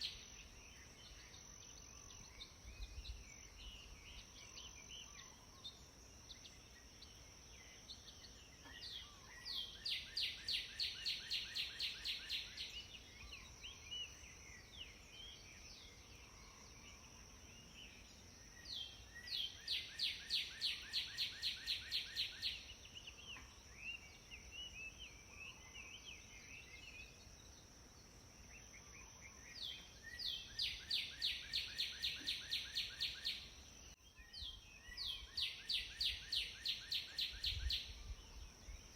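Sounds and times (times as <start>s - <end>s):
soft bird chirps: 0.0s - 38.9s.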